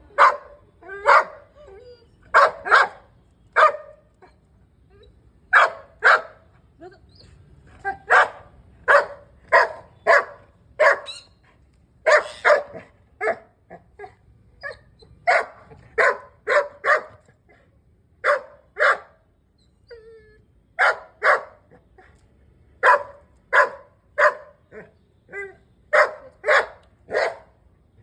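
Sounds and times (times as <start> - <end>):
dog barking: 0.2 - 1.4, 2.3 - 4.0, 5.5 - 6.4, 7.9 - 11.2, 12.0 - 13.5, 15.2 - 17.2, 18.2 - 19.2, 20.8 - 21.7, 22.8 - 24.8, 25.9 - 27.6.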